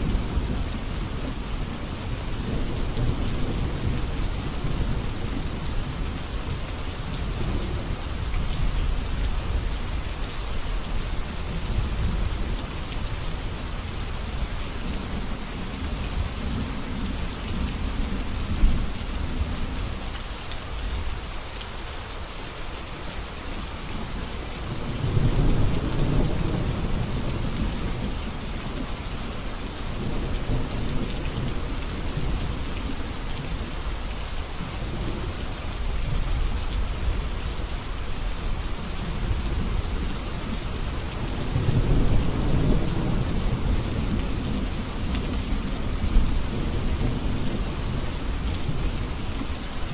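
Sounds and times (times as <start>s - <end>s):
steady rain: 0.0s - 49.9s
low rolling thunder: 24.6s - 28.4s, 38.6s - 49.2s.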